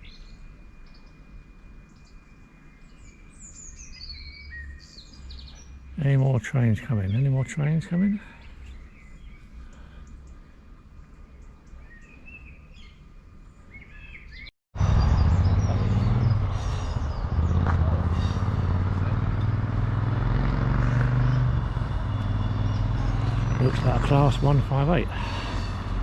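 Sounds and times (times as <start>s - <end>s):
small birds chirping: 1.9s - 26.0s
train diesel engine drone: 14.8s - 26.0s.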